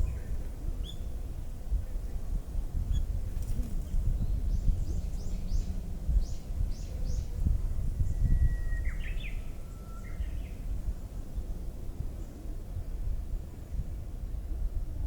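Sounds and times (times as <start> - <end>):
bird singing: 0.0 - 1.1, 3.9 - 7.4, 8.0 - 11.5.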